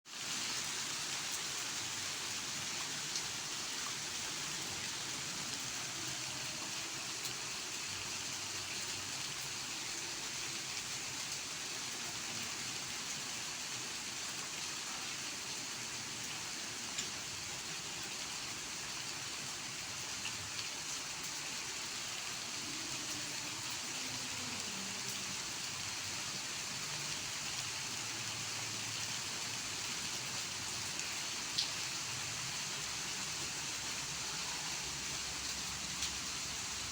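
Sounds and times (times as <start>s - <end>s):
steady rain falling: 0.1s - 36.9s.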